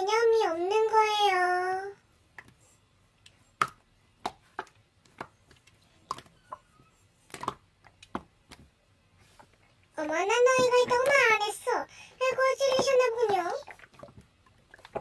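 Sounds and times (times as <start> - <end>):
slime clicking and popping: 3.6 - 6.6, 7.3 - 8.6.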